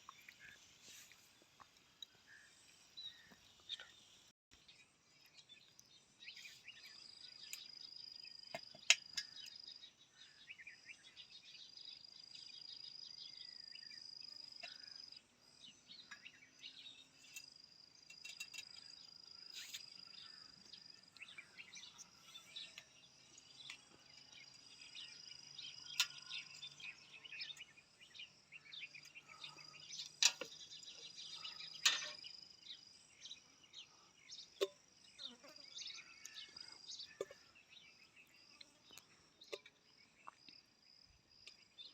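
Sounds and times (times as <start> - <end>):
insects trilling: 16.0 - 41.9.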